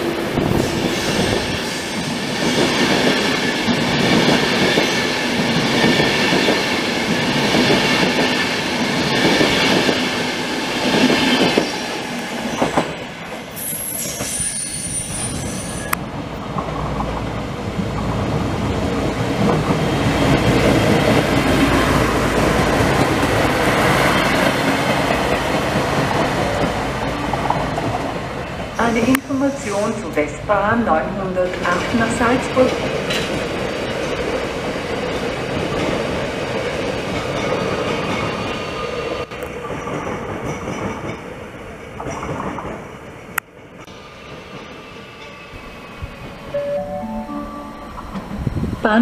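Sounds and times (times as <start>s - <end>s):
diesel railcar rumble: 8.8s - 49.0s
train wheel squeal: 13.5s - 16.0s
rail clatter: 39.2s - 43.2s.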